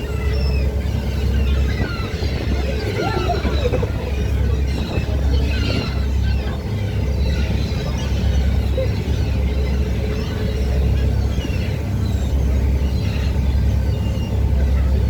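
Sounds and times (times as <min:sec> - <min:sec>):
boat engine rumble: 0:00.0 - 0:15.0
wind buffeting microphone: 0:00.0 - 0:15.0.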